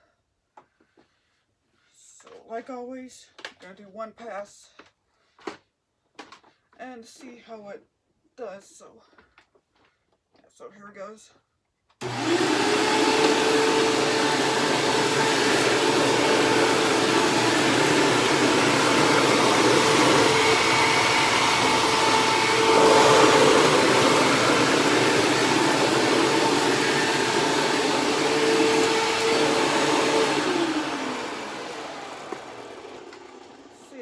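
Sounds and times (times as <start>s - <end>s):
upright vacuum cleaner running: 12.0s - 34.0s.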